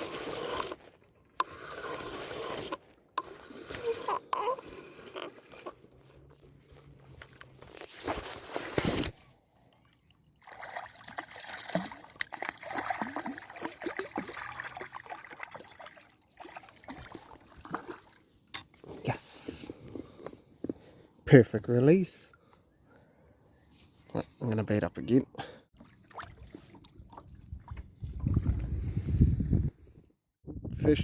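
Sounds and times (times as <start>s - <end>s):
water sloshing and splashing: 0.0s - 18.8s, 25.7s - 28.7s.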